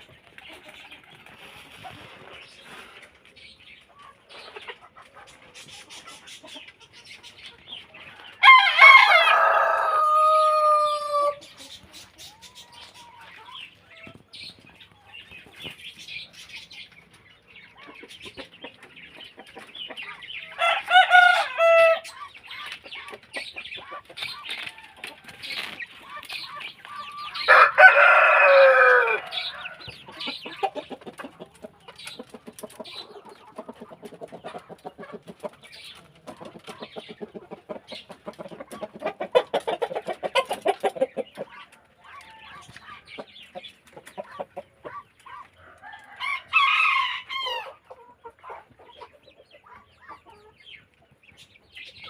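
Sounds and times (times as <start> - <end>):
hens clucking: 0.0 - 52.0
rooster crowing: 8.4 - 11.4, 20.6 - 22.0, 27.4 - 29.8.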